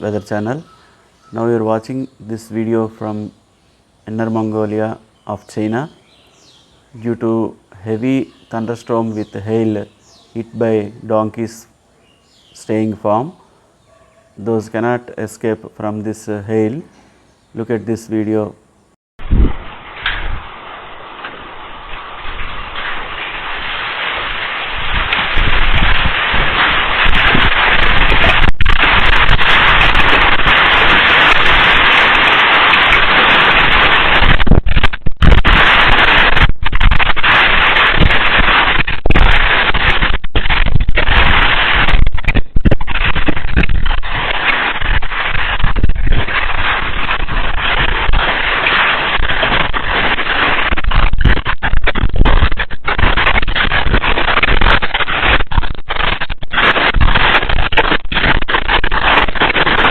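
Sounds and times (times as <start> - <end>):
hailstones clattering: 19.6 - 59.9.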